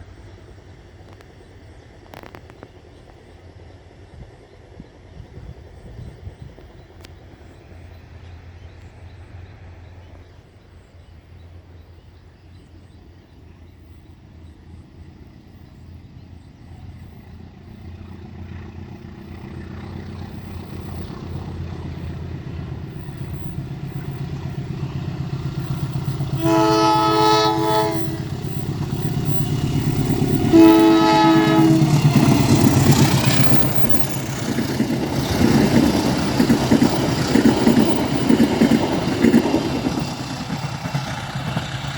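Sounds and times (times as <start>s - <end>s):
diesel locomotive engine rumble: 0.0s - 41.9s
train wheel noise: 0.0s - 41.9s
train horn blasts: 26.2s - 32.8s.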